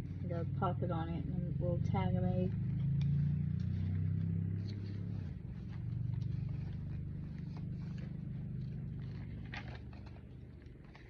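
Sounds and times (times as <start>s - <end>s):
low motor hum: 0.0s - 11.0s
journal pages being handled: 2.5s - 11.0s.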